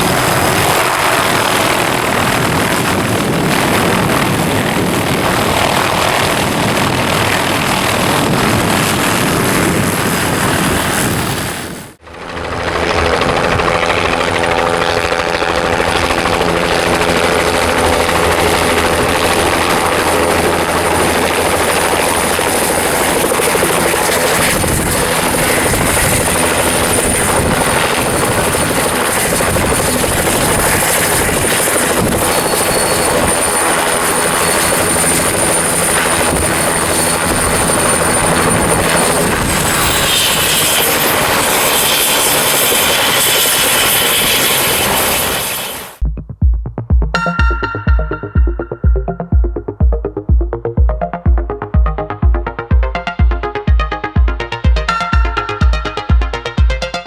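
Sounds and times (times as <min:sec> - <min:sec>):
helicopter rotor and turbine: 0:00.0 - 0:46.1, 0:47.2 - 0:57.0
thin high whine: 0:23.5 - 0:46.0.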